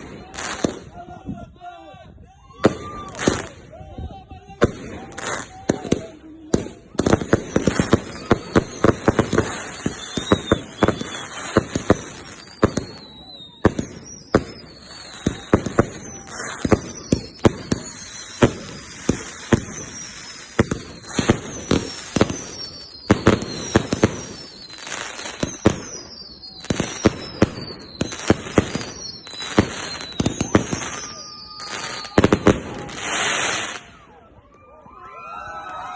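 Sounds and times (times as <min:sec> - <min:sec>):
falling firework whistles: 0:02.6 - 0:03.7, 0:04.7 - 0:34.2
firework launches and bangs: 0:04.6 - 0:34.0
loud firework hiss: 0:13.6 - 0:33.9.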